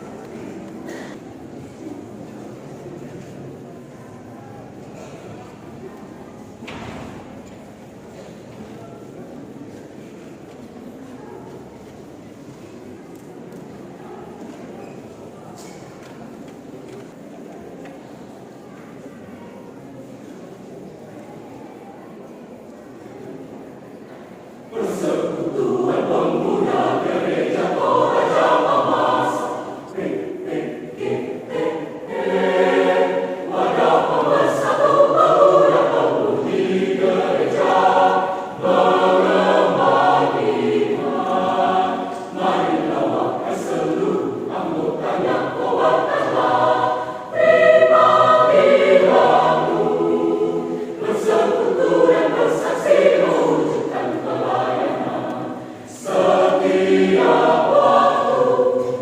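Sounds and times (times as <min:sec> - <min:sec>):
choir singing: 0:00.0 - 0:01.3, 0:23.2 - 0:59.0.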